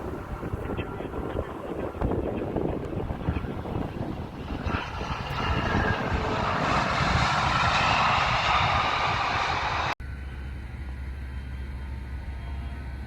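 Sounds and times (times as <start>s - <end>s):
airplane engines: 0.0s - 13.0s
hissing whining noise: 2.6s - 10.0s.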